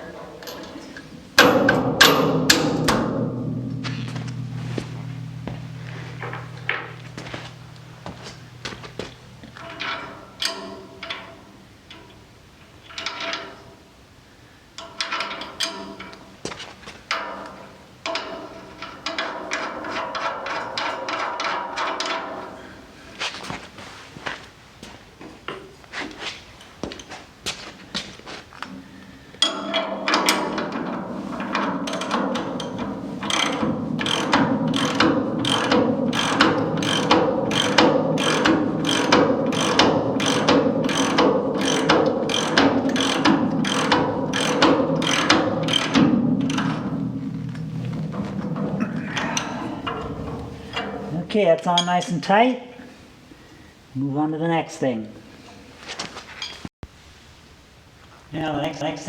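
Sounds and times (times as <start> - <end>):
metal-on-metal taps and clinks: 0.4 - 3.0
ratchet wrench clicking: 31.9 - 46.9.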